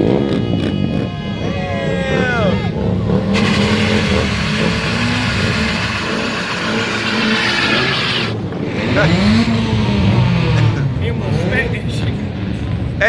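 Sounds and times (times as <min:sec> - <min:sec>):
car engine revving: 0:00.0 - 0:13.0
loud rushing noise: 0:02.7 - 0:10.0.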